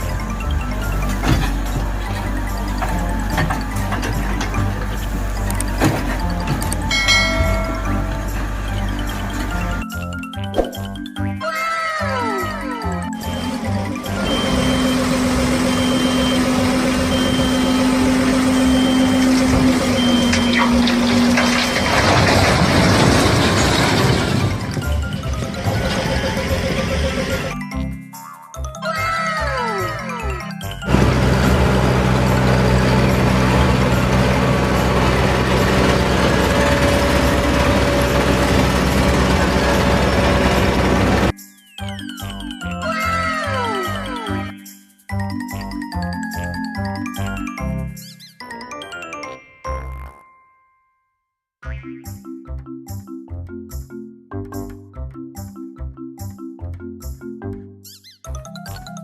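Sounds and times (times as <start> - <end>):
heavy truck engine running: 0.0 - 9.8, 13.2 - 27.6, 30.9 - 41.3
reversing alarm beeping: 13.2 - 22.2.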